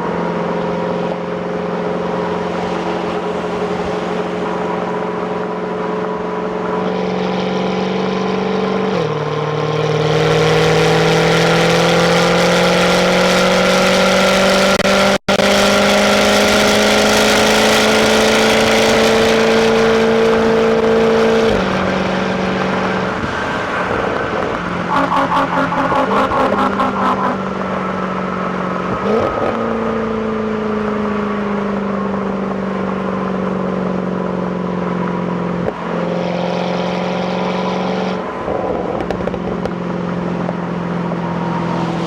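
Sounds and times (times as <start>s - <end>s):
car engine accelerating: 7.6s - 31.4s.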